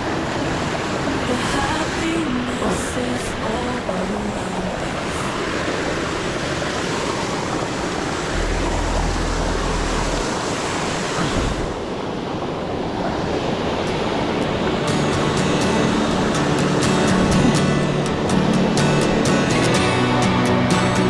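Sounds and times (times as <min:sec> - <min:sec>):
waterfall rushing: 0:00.0 - 0:21.0
music: 0:13.9 - 0:21.0.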